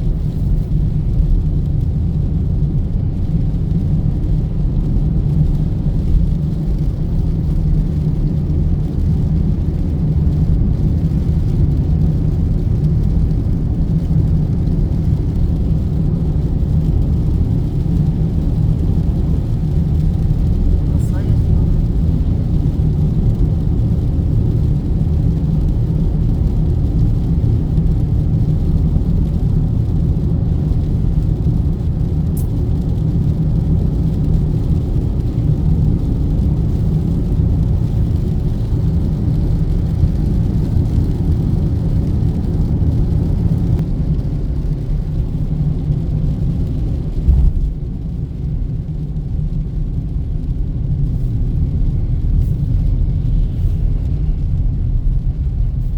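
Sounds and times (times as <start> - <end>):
car road and engine rumble: 0.0 - 55.9
short thump: 47.2 - 47.8.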